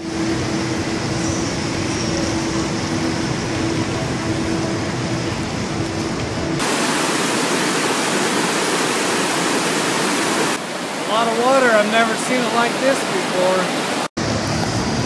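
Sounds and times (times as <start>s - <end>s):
steady hum: 0.0s - 15.0s
rushing floodwater: 6.4s - 15.0s.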